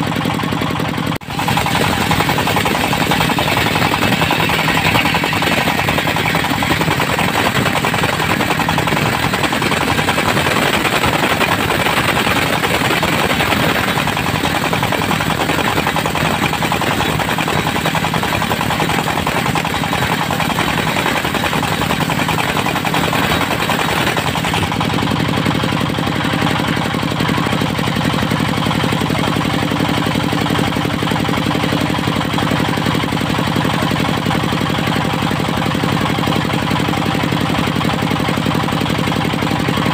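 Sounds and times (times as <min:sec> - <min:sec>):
diesel engine running: 0:00.0 - 0:39.9
circular saw cutting wood: 0:01.2 - 0:27.0.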